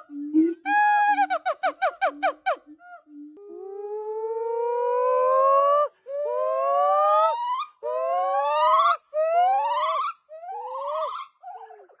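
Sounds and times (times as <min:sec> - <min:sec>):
primate whooping calls: 0:00.0 - 0:02.6.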